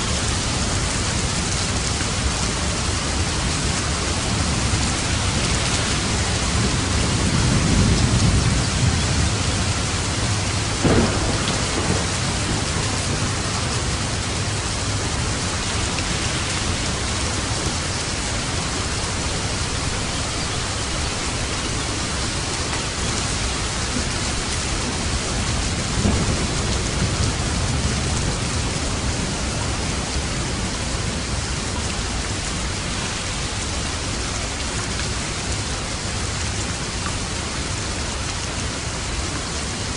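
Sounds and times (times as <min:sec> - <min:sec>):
thunder rumbling: 0:00.0 - 0:36.6
heavy rain: 0:00.0 - 0:39.9
thunder claps: 0:04.7 - 0:17.9, 0:24.0 - 0:30.7.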